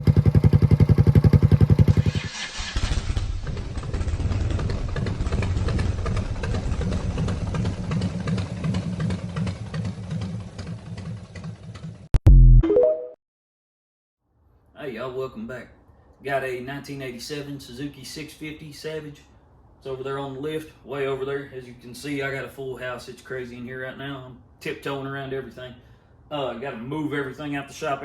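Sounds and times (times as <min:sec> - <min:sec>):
motorcycle engine running: 0:00.0 - 0:02.2, 0:03.1 - 0:12.1.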